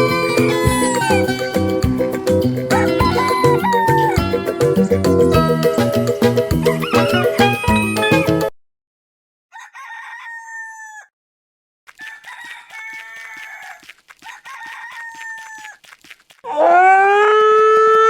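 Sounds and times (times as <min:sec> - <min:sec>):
rooster crowing: 0:00.0 - 0:01.6, 0:02.7 - 0:04.3, 0:06.6 - 0:08.4, 0:09.5 - 0:11.1, 0:12.0 - 0:15.8, 0:16.5 - 0:18.0.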